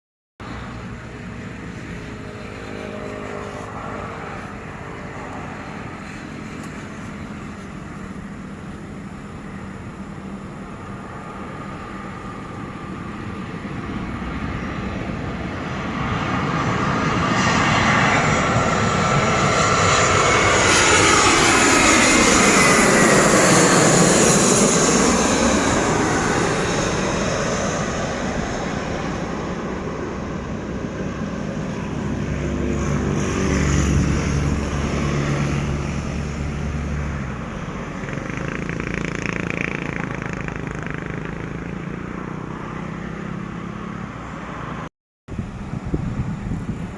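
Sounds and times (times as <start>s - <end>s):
airliner passing low overhead: 0.4s - 46.9s.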